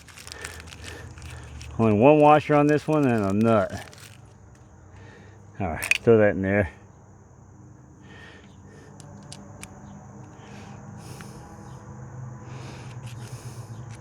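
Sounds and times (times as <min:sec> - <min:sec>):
small metal parts clicking: 0:00.0 - 0:04.2, 0:05.8 - 0:06.1, 0:09.0 - 0:09.8.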